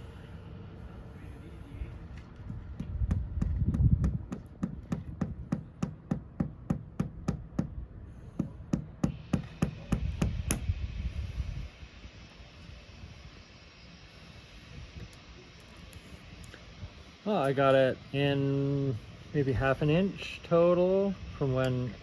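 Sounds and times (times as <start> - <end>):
hammer tapping wood: 2.8 - 7.7.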